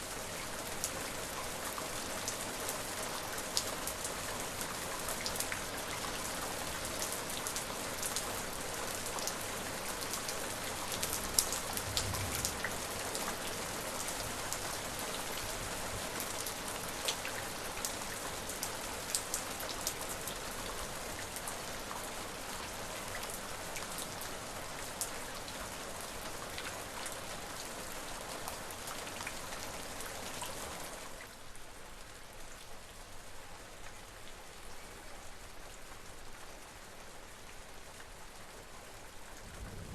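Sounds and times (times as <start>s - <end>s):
steady rain hiss: 0.0s - 39.9s
raindrops ticking on surface: 9.0s - 15.5s.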